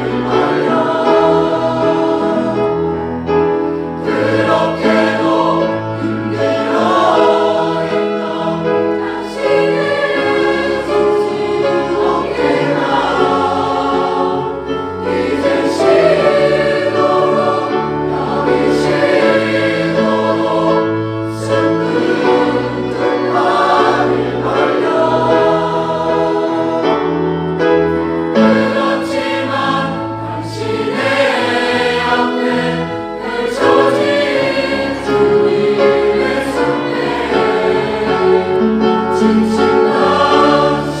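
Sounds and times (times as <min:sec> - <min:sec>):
choir singing: 0:00.0 - 0:41.0.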